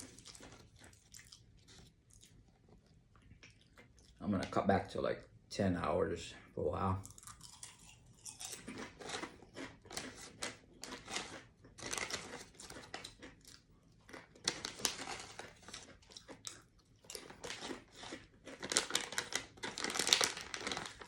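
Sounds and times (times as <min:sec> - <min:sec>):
plastic snack packaging rustling: 0:00.0 - 0:01.9, 0:08.4 - 0:21.0
crunchy chewing: 0:00.0 - 0:04.2, 0:07.0 - 0:21.0.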